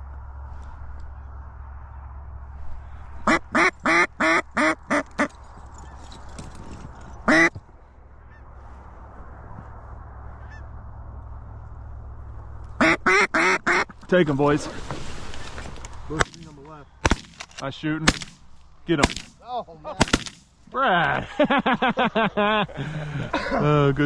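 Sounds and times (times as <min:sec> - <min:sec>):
duck call quacks: 0:03.2 - 0:05.3, 0:07.3 - 0:07.5, 0:12.8 - 0:13.9.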